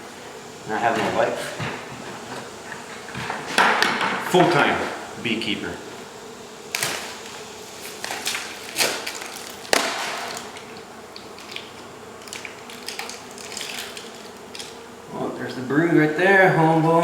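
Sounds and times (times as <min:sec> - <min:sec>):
hand tools scraping and knocking wall: 0:00.7 - 0:05.0.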